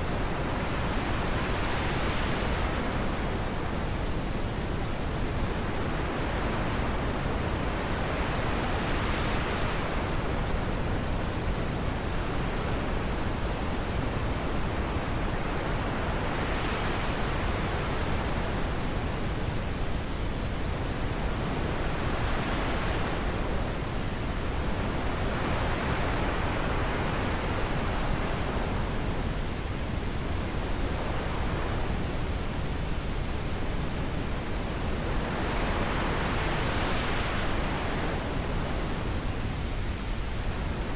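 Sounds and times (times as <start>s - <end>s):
gusting wind: 0.0s - 40.9s.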